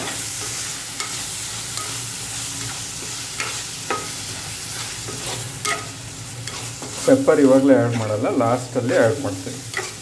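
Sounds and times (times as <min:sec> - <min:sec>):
food sizzling in a pot: 0:00.0 - 0:10.0
metal spoon clinking and scraping pot: 0:04.8 - 0:08.2, 0:08.9 - 0:10.0.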